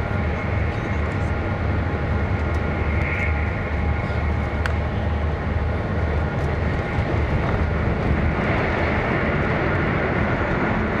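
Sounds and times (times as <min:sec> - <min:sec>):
train wheels rumbling on rail: 0:00.0 - 0:11.0
rushing air: 0:01.5 - 0:11.0.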